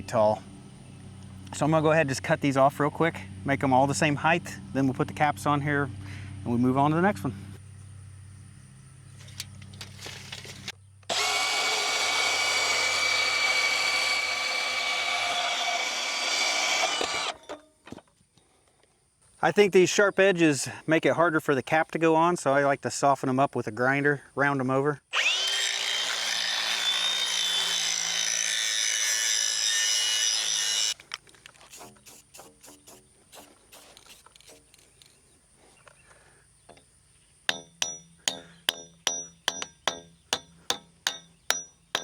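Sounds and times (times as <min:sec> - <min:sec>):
power tool whining: 0:09.3 - 0:17.6, 0:25.1 - 0:31.0
angle grinder grinding metal: 0:09.8 - 0:17.6, 0:25.2 - 0:31.0, 0:37.5 - 0:42.0.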